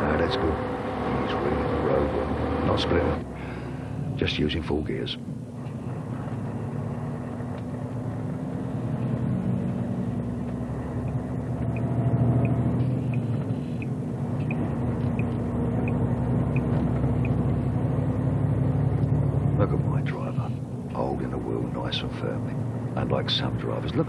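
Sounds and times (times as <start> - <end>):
truck diesel engine running: 0.0 - 24.0
faint regular tick: 7.5 - 7.7.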